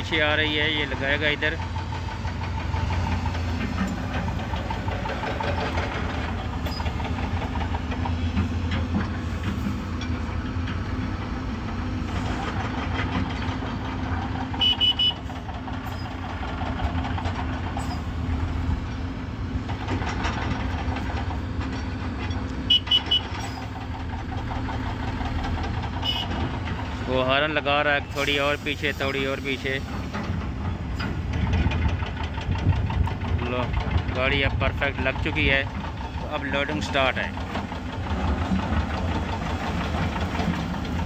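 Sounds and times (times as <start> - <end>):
diesel truck engine running: 0.0 - 41.0
short high-pitched horn beeps: 14.6 - 15.2.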